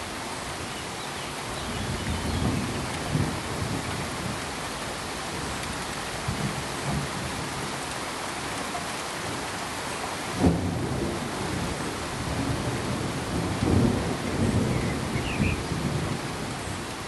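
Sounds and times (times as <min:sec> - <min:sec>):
rain hiss: 0:00.0 - 0:17.0
thunder rumbling: 0:01.6 - 0:07.9, 0:10.3 - 0:16.7.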